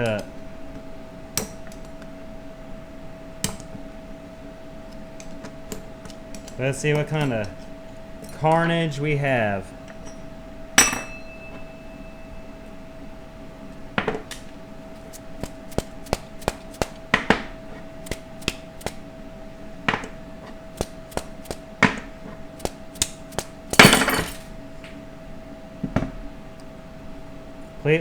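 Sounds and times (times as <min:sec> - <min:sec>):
hammer striking metal: 0:10.8 - 0:11.6, 0:22.6 - 0:24.4
loud metal clatter: 0:23.7 - 0:24.5.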